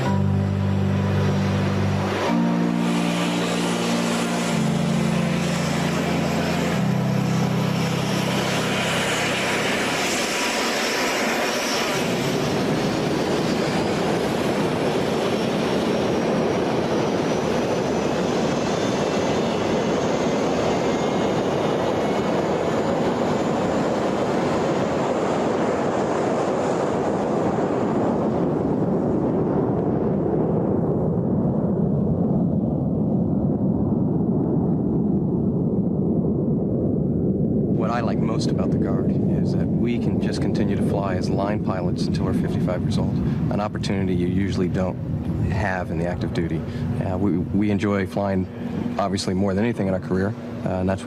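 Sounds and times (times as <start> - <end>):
held music chords: 0.0 - 10.4
jet engines roaring with whine: 0.0 - 51.0.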